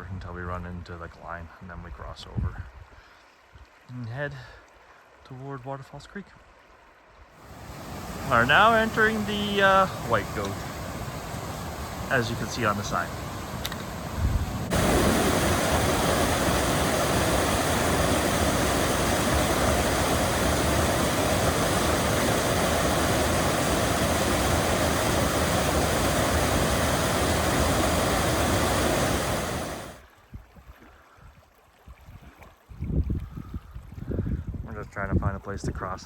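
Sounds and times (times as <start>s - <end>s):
fast mountain creek rushing: 7.4s - 30.0s.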